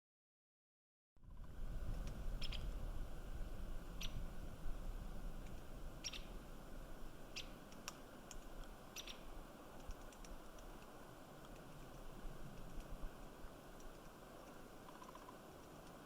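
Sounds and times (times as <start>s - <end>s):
woodpecker tapping on pine cones: 7.4s - 16.0s.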